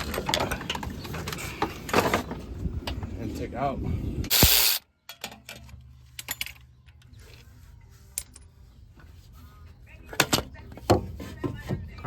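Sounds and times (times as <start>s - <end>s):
loud burst of noise: 4.3s - 4.8s.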